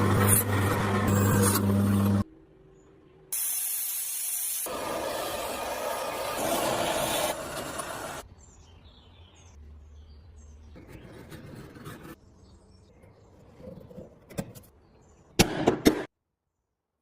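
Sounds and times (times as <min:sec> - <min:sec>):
loud spray hiss: 0:03.4 - 0:08.2.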